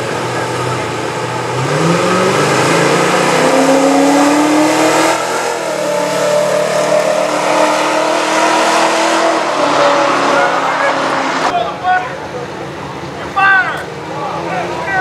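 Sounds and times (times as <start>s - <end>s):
car engine revving at full throttle: 0.0s - 11.5s.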